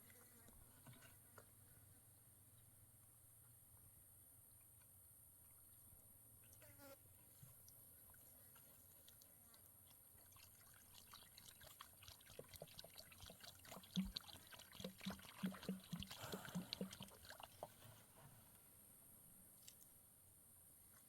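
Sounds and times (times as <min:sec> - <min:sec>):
liquid pouring and trickling: 0:10.2 - 0:17.8.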